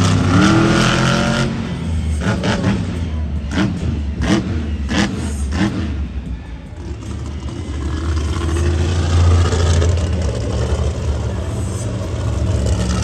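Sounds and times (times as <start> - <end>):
truck engine deep rumble: 0.0 - 13.0.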